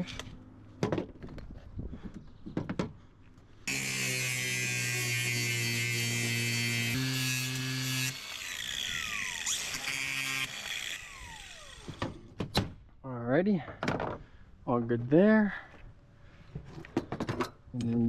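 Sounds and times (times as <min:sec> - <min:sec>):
power tool motor running: 0:03.7 - 0:12.1.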